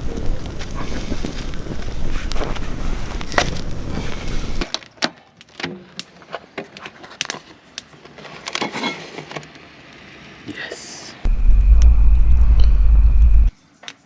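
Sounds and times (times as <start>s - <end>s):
campfire crackling and popping: 0.0s - 4.7s, 11.3s - 13.5s
wind noise on microphone: 0.0s - 4.7s, 11.3s - 13.5s.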